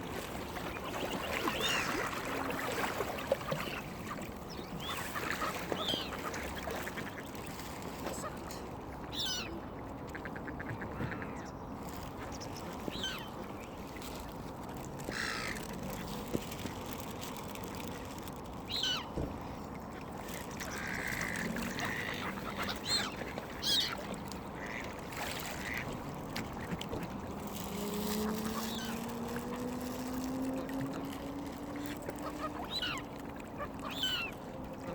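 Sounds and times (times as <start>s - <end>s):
ducks and gulls calling: 0.6s - 2.4s, 3.4s - 7.4s, 9.1s - 11.6s, 12.3s - 13.4s, 18.7s - 19.1s, 20.6s - 25.9s, 28.2s - 29.1s, 31.8s - 34.9s.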